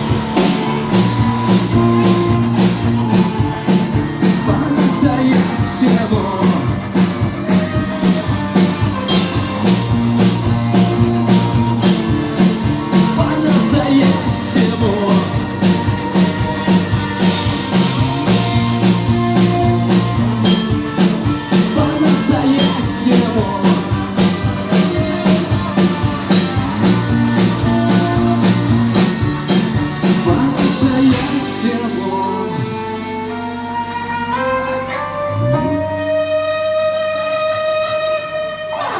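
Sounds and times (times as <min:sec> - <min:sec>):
live band playing: 0:00.0 - 0:38.9
soft sustained instrument notes: 0:31.7 - 0:38.9.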